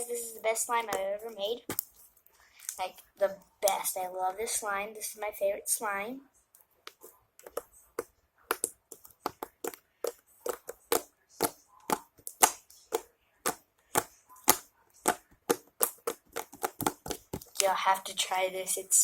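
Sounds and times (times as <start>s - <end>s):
slime squeezed with wet pops: 6.9s - 17.8s.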